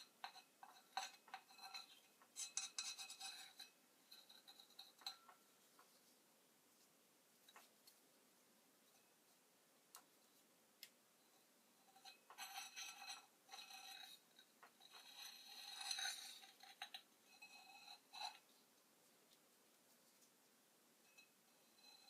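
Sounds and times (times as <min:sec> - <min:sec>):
thin ringing tone: 0:21.0 - 0:22.0.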